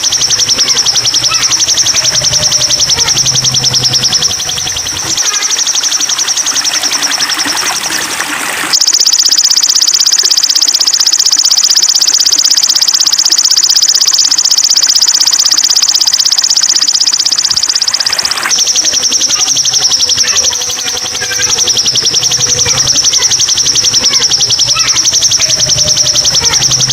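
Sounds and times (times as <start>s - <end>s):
bird trilling: 0.0s - 26.9s.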